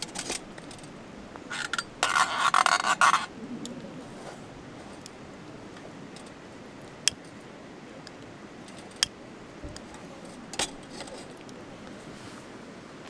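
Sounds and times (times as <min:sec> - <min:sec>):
background noise: 0:00.0 - 0:13.0
wood fire crackling: 0:00.0 - 0:13.0.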